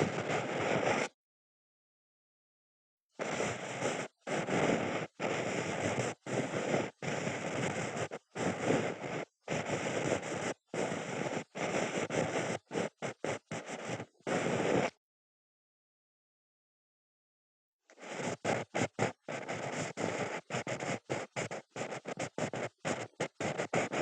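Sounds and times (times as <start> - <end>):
ear-cleaning scrapes: 3.2 - 14.9, 18.0 - 24.0.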